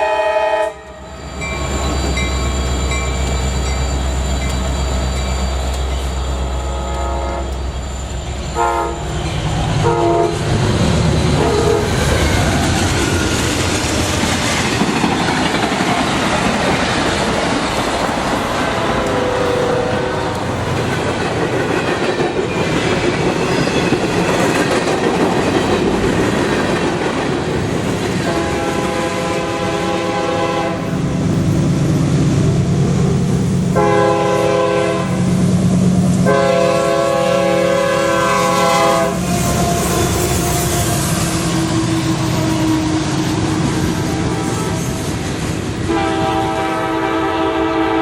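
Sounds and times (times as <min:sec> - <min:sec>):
locomotive air horn chord: 0:00.0 - 0:01.2, 0:06.4 - 0:07.7, 0:08.5 - 0:09.2, 0:09.8 - 0:10.6, 0:11.4 - 0:12.0, 0:18.6 - 0:20.5, 0:28.3 - 0:30.9, 0:33.8 - 0:35.3, 0:36.2 - 0:43.2, 0:44.0 - 0:45.0, 0:45.9 - 0:48.0
train wheels on rails: 0:00.9 - 0:48.0.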